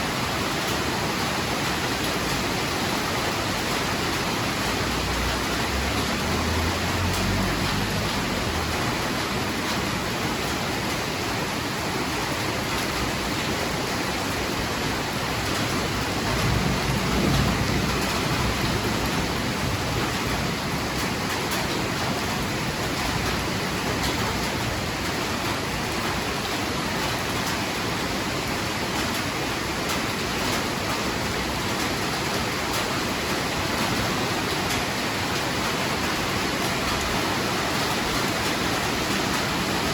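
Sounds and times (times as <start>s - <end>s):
heavy rain: 0.0s - 39.9s
thunder rumbling: 16.0s - 21.0s.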